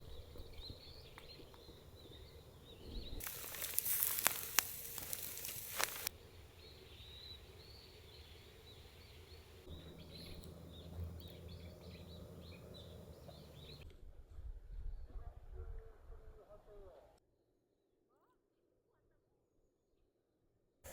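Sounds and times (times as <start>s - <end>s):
small birds chirping: 0.0s - 13.8s
loud hiss with crackles: 3.2s - 6.1s.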